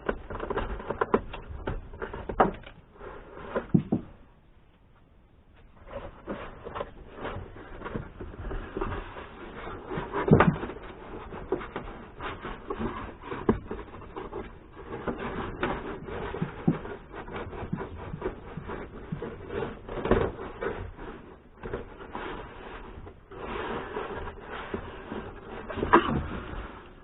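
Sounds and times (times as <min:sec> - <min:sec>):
knocks: 0:03.6 - 0:04.2
rubbing and scraping on car trim: 0:05.7 - 0:27.0.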